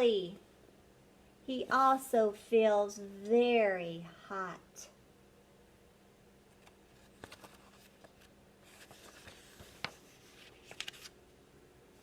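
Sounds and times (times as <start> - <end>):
paper rustling: 6.6 - 11.2
small clicks of book pages: 6.6 - 11.2.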